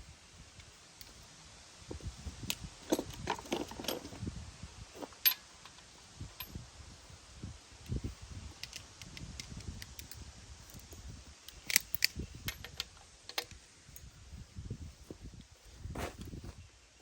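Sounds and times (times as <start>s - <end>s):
small metallic clicks and clinks: 5.0s - 6.6s, 8.6s - 14.1s
low knocks and shuffling: 14.8s - 16.6s.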